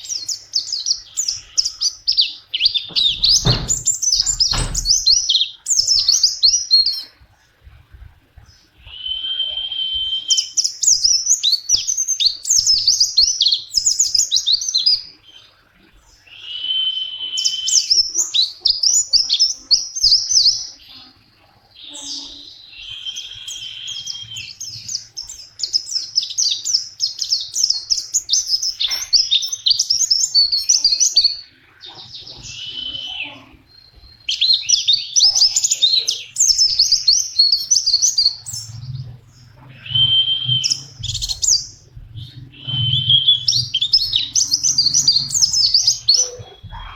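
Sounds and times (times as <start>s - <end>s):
white-eye whistling and twittering: 8.9s - 14.2s, 16.2s - 19.4s, 21.8s - 46.9s.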